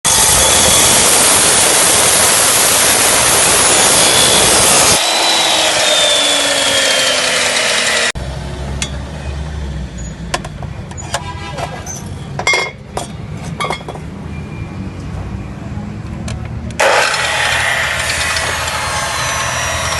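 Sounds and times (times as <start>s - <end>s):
cutting disc grinding steel: 0.1s - 8.2s, 16.8s - 19.9s.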